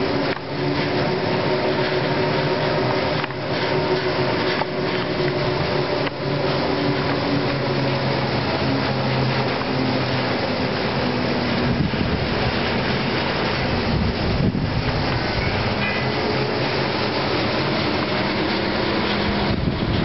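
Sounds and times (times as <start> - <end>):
cable car ropes humming over wheels: 0.0 - 20.0
wind noise: 11.3 - 20.0.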